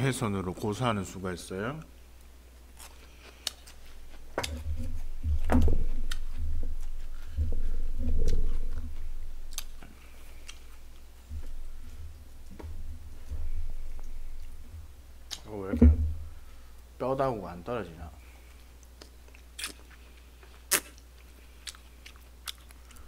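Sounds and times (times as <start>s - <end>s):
close chewing: 2.8s - 12.7s, 18.8s - 23.0s
dull low thumps: 4.4s - 9.7s, 11.2s - 16.5s.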